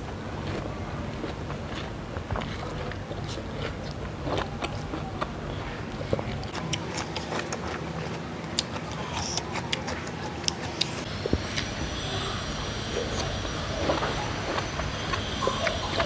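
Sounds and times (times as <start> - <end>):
steady low hum: 0.0 - 16.0
crisp fruit chewing: 0.4 - 16.0
wet clicks and crunches: 5.9 - 11.7.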